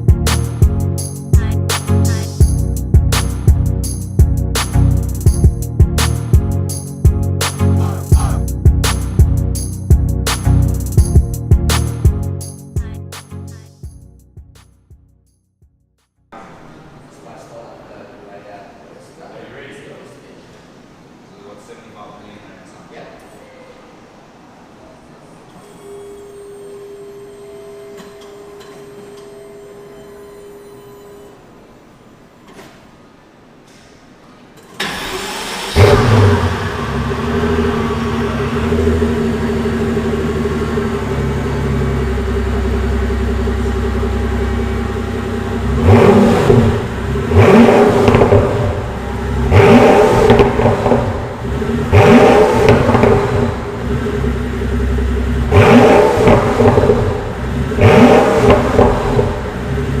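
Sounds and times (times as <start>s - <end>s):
car engine starting and revving: 34.7s - 60.0s.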